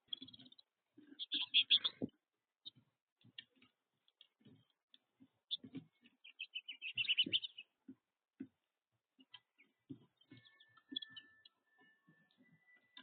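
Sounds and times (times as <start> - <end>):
finches chirping: 0.0 - 3.6, 5.4 - 7.8, 9.4 - 13.0
soft low knocks and ticks: 0.0 - 13.0.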